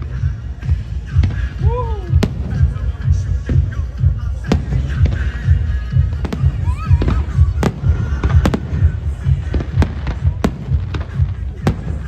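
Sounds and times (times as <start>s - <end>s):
music with heavy low pulse: 0.0s - 12.0s
fireworks bangs: 4.4s - 12.0s.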